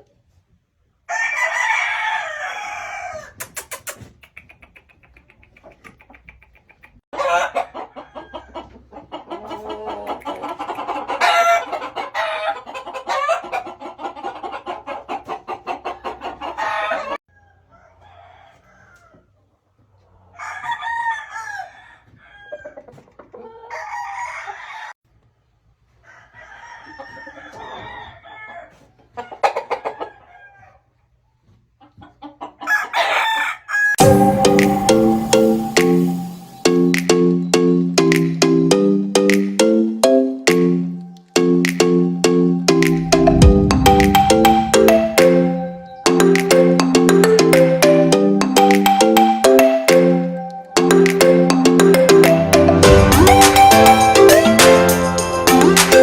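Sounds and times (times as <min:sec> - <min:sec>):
roosters crowing: 0:01.1 - 0:03.4, 0:07.2 - 0:19.4, 0:20.2 - 0:25.0, 0:26.0 - 0:30.8, 0:32.6 - 0:37.0
chickens clucking: 0:02.7 - 0:20.4, 0:22.0 - 0:24.9, 0:26.8 - 0:54.6.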